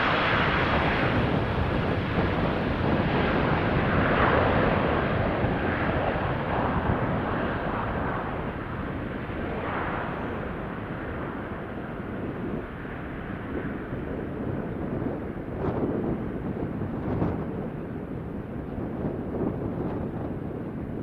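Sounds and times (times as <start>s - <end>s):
jet engines at takeoff: 0.0s - 21.0s.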